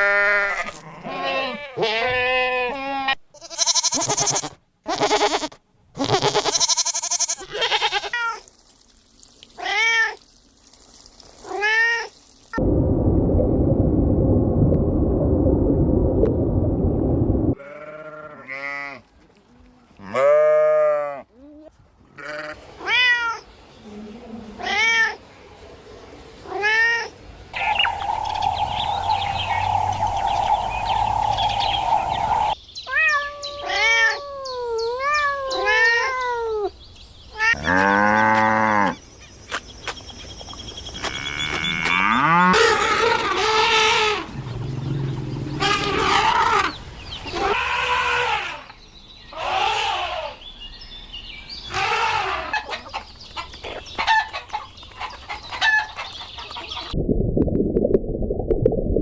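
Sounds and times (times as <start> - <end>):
loud low rumbling: 12.6 - 17.6, 27.6 - 32.6, 44.2 - 46.9
steady hum: 27.6 - 32.6.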